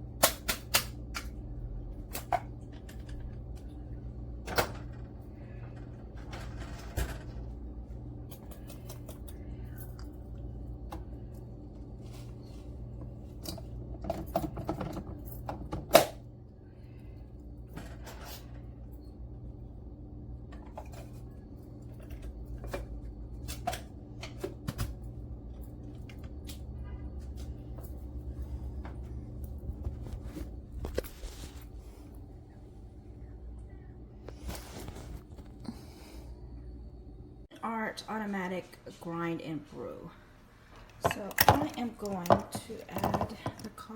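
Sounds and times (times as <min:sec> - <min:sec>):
low electrical hum: 0:00.0 - 0:43.9
objects being handled and set down: 0:28.7 - 0:32.0, 0:34.2 - 0:36.1.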